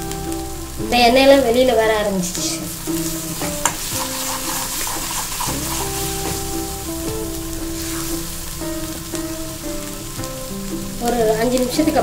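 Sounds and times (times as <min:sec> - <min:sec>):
food sizzling in oil: 0:00.0 - 0:12.0
soft background music: 0:00.0 - 0:12.0
spoon stirring in pan: 0:02.5 - 0:08.4.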